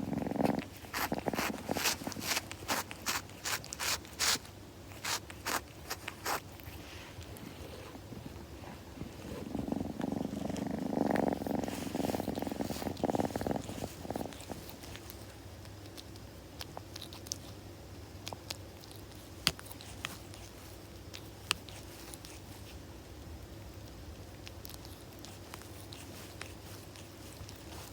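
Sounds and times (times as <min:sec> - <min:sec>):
kitten purring: 0:00.0 - 0:27.9.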